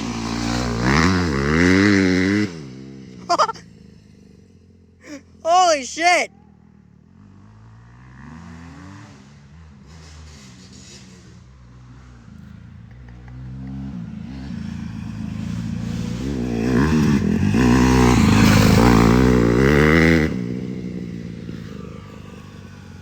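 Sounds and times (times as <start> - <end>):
dirt bike engine revving: 0.0 - 3.6, 7.6 - 11.2, 13.1 - 22.5.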